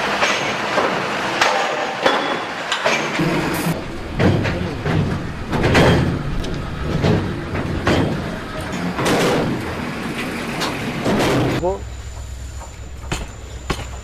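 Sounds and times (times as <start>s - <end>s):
train rumbling: 0.0s - 14.0s
knocks and clanks: 0.2s - 14.0s.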